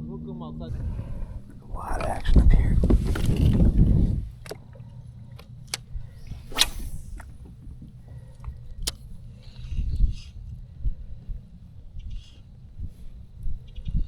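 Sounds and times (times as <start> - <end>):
low rumble: 0.0 - 4.4.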